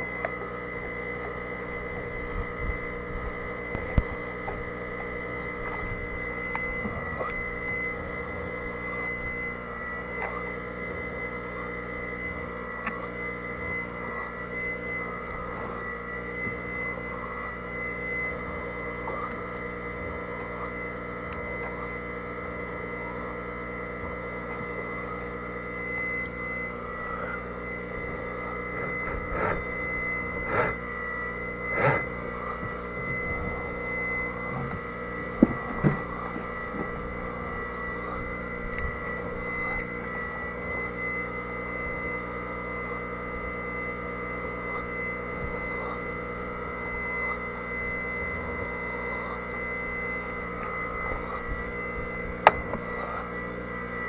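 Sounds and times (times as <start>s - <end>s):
electrical hum: 0.0s - 54.0s.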